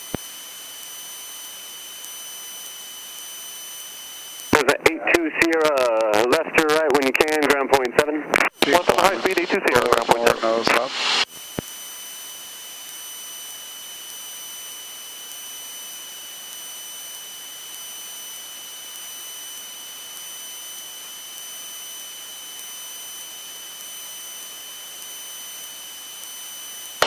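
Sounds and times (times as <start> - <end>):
high-pitched electrical whine: 0.0 - 27.0
intercom hiss: 4.5 - 11.2.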